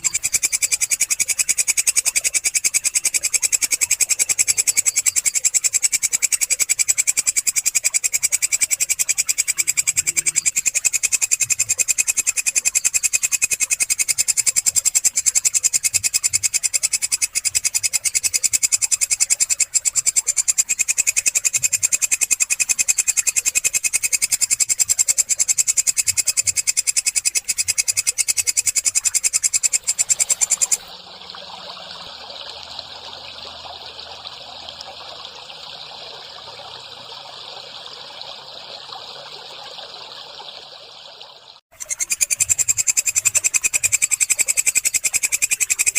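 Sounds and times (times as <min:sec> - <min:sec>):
katydid fast pulsing trill: 0:00.0 - 0:30.9, 0:41.7 - 0:45.9.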